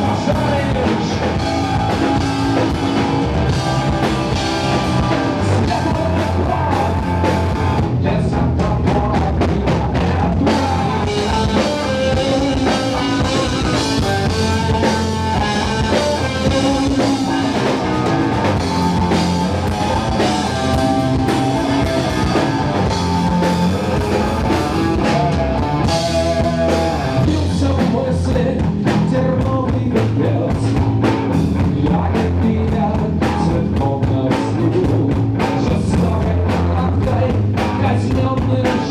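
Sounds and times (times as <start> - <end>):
person singing: 0.0 - 23.9, 25.0 - 30.9
drum kit: 0.0 - 38.9
guitars: 0.0 - 38.9.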